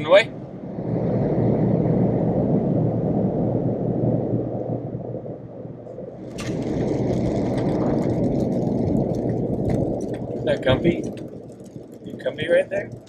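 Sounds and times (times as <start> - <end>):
small clicks and rustling: 6.2 - 13.0.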